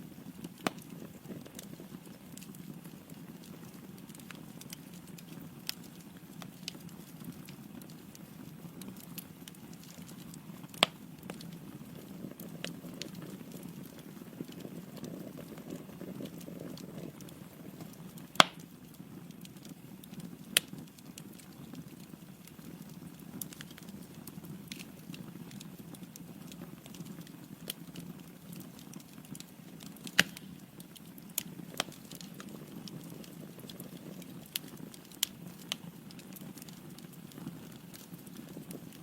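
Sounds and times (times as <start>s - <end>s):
low rumble of flames: 0.0s - 39.0s
wood crackles and pops: 0.0s - 39.0s.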